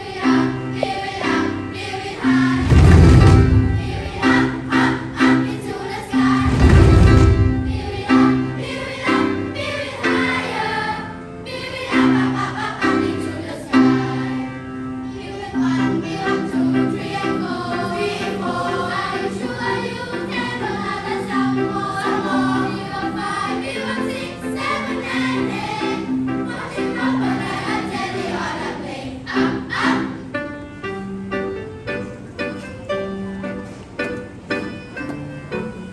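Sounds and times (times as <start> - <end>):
held low accompanying notes: 0.0 - 14.4
choir singing in harmony: 0.0 - 30.4.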